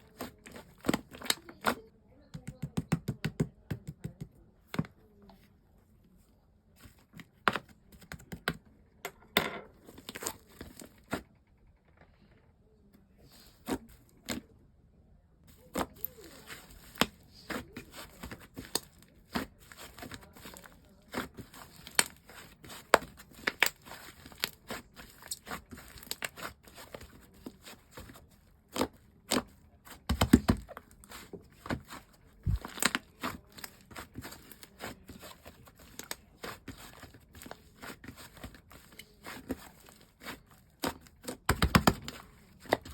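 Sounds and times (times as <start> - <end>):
slime squishing with sticky pops: 15.7 - 42.9.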